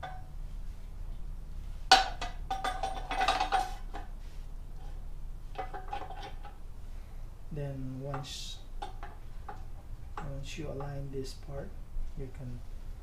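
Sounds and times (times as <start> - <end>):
metal rattling and clinking: 1.9 - 4.0, 5.5 - 6.6
metal jack parts clanking: 2.0 - 4.0.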